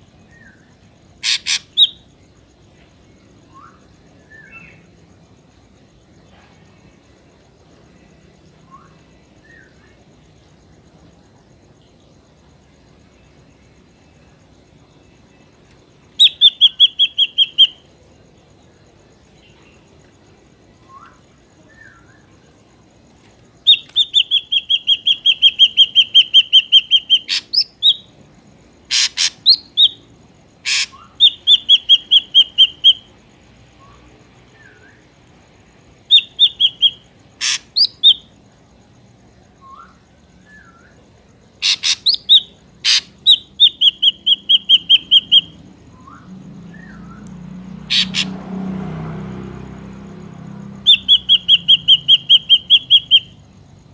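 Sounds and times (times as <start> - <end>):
drongo calls: 0.0 - 53.9
insect chirping at high pitch: 0.0 - 53.9
bird calling repeated notes: 1.2 - 2.0, 16.1 - 17.9, 23.6 - 28.1, 28.9 - 30.0, 30.6 - 33.1, 36.1 - 38.3, 41.6 - 47.2, 47.9 - 48.3, 50.8 - 53.4.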